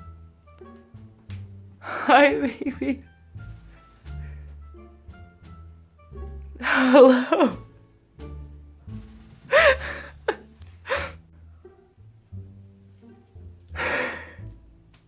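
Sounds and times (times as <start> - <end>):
background music: 0.0 - 15.0
breathy burst: 9.1 - 11.2, 13.8 - 14.4.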